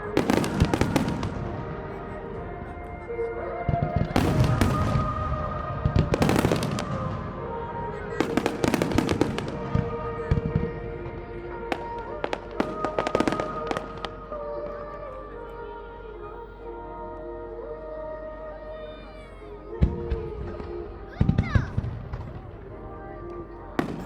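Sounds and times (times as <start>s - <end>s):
fireworks bursting and crackling: 0.0s - 2.0s, 3.8s - 14.2s, 23.8s - 24.0s
music with long held notes: 0.0s - 24.0s.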